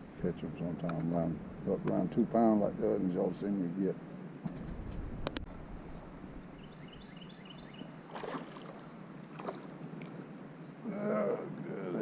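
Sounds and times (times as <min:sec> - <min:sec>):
water and hull sounds: 0:07.7 - 0:10.5.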